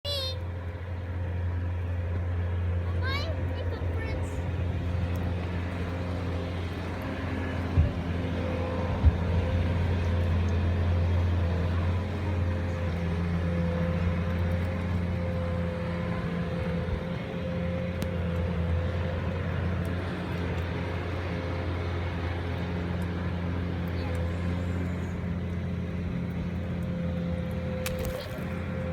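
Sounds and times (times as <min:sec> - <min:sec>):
vehicle engine hum: 0:00.0 - 0:28.9.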